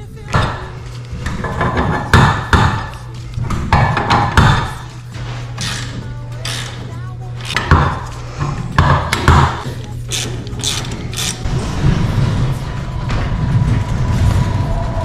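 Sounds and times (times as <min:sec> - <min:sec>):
low mechanical running noise: 0:00.0 - 0:15.0
knocks: 0:01.3 - 0:02.9, 0:03.5 - 0:04.9
mechanical clicking and clatter: 0:08.8 - 0:15.0.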